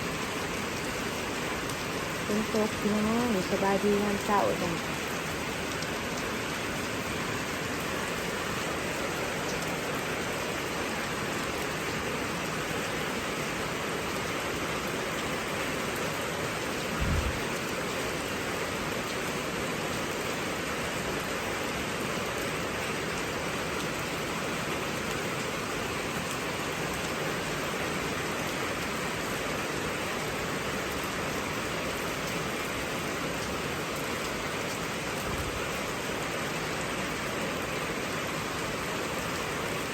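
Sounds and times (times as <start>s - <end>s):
heavy rain falling: 0.0s - 39.9s
low thump: 17.0s - 17.4s.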